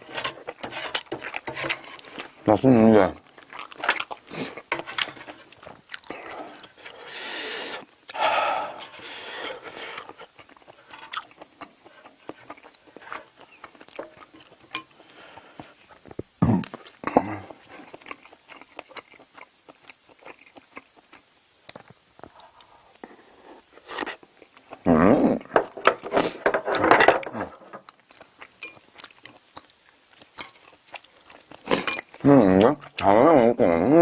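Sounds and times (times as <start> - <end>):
person chewing food: 0.0 - 2.5, 3.1 - 26.8, 27.4 - 33.2.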